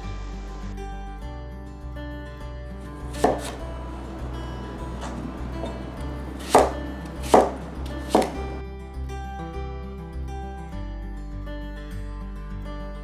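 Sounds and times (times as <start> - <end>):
knife chopping on plastic board: 3.1 - 8.6.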